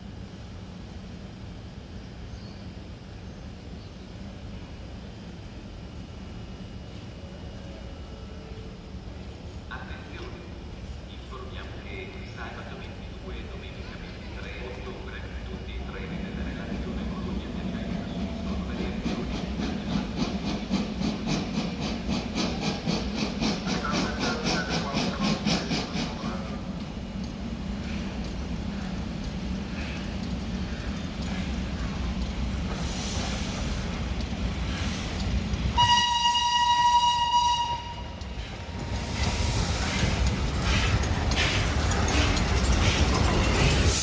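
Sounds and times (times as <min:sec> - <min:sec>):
low rumble of rail noise: 0:00.0 - 0:44.0
train hissing strokes: 0:29.6 - 0:35.5, 0:38.3 - 0:44.0
train horn: 0:35.8 - 0:38.2
rail clatter: 0:38.2 - 0:44.0.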